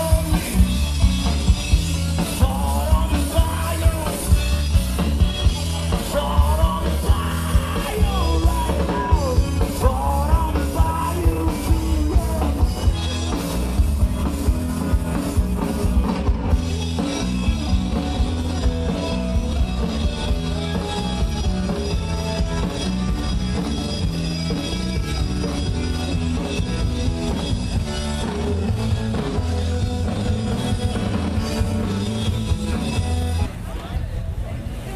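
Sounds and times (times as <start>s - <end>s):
steady drum beat: 0.0s - 33.5s
rock band playing: 0.0s - 33.7s
person singing: 2.2s - 4.4s, 5.6s - 13.1s.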